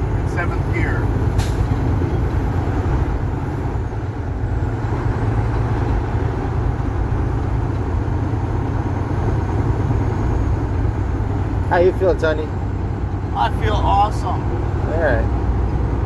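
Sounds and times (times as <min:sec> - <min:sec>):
diesel truck engine running: 0:00.0 - 0:16.0
road noise: 0:00.0 - 0:16.0.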